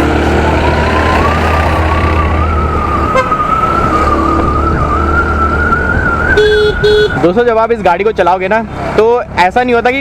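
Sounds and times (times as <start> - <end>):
scooter engine whine: 0.0 - 7.3
wind rumble on microphone: 1.0 - 7.0.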